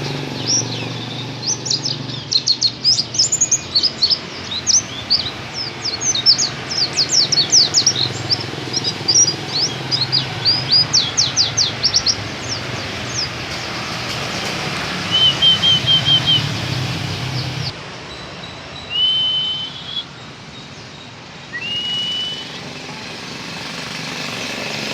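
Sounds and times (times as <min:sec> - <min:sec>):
bird chirping and trilling: 0:00.0 - 0:23.6
bird whistles: 0:15.0 - 0:16.8, 0:18.8 - 0:20.2, 0:21.4 - 0:22.8.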